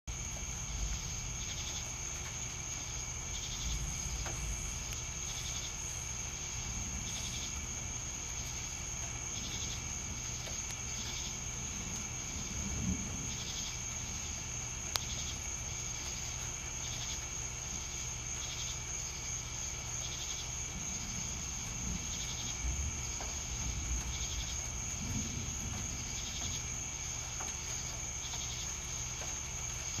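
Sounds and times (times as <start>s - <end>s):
cricket trill: 0.1s - 30.0s
pulsed insect chirps: 2.7s - 7.7s
low rumble: 3.3s - 5.4s.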